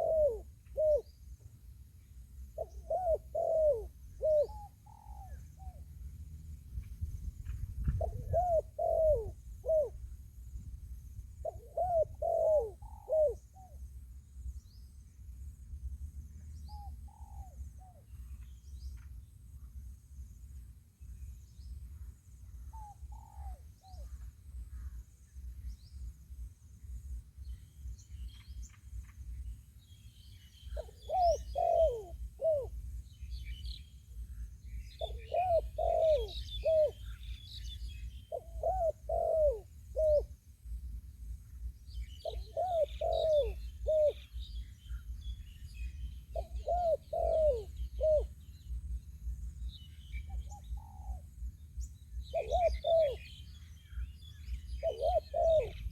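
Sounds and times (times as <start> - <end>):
dove cooing: 0.0 - 1.1, 2.5 - 5.8, 7.8 - 10.1, 11.4 - 13.8, 16.7 - 18.0, 22.7 - 24.2, 30.7 - 32.8, 35.0 - 40.3, 42.2 - 45.2, 45.9 - 48.4, 50.2 - 51.3, 52.2 - 55.9
small birds chirping: 27.4 - 40.3, 41.6 - 55.9.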